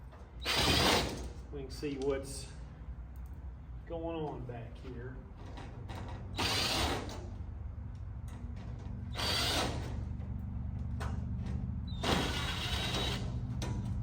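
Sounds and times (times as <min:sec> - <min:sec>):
power drill whine: 0:06.4 - 0:07.2, 0:09.1 - 0:10.0, 0:11.9 - 0:13.4.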